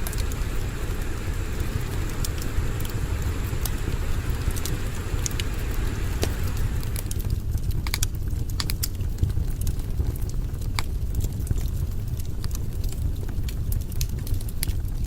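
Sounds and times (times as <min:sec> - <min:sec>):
low rumble: 0:00.0 - 0:07.5
campfire crackling and popping: 0:00.0 - 0:15.0.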